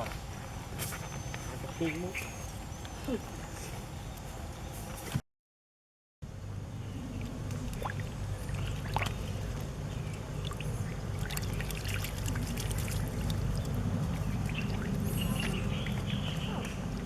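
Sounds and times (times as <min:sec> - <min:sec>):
steady low rumble: 0:06.2 - 0:17.0
muddy water sloshing: 0:07.1 - 0:17.0.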